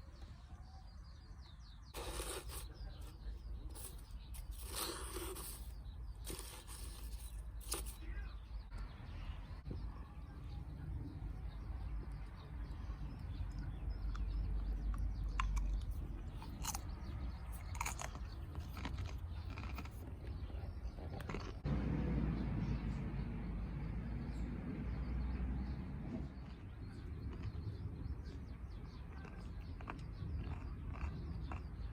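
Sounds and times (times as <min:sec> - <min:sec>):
low steady rumble: 0:08.6 - 0:31.9.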